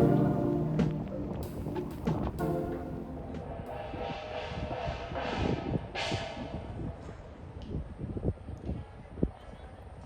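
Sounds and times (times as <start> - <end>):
faint background music: 0.0 - 5.3
wind buffeting microphone: 0.0 - 10.0.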